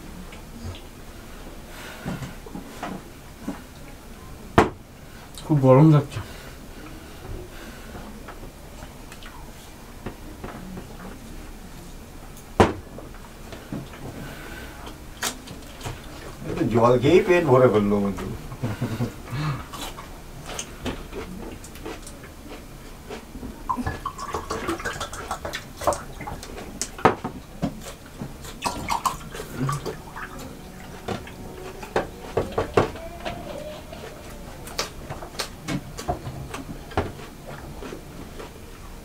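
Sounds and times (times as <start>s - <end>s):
low background hum: 0.0s - 39.0s
eating smacks and clicks: 19.7s - 27.0s, 34.6s - 38.5s
plate noises: 23.6s - 39.0s.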